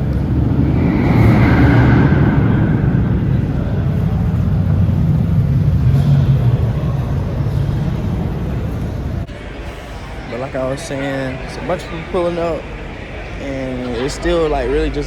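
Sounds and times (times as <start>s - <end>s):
car engine rumbling: 0.0s - 9.5s.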